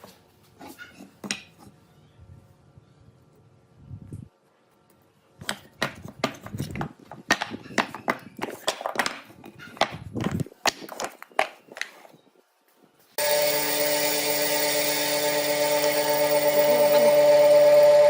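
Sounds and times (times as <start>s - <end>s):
hard objects knocking and clattering: 5.4s - 11.9s.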